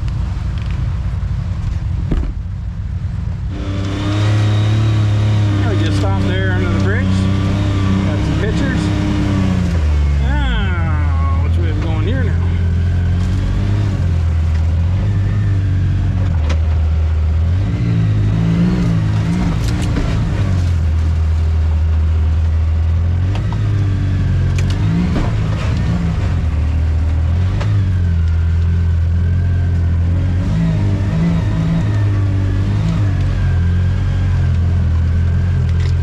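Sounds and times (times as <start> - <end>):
sharp knocks: 2.1 - 2.4
atv engine revving: 3.5 - 21.2, 23.0 - 36.0.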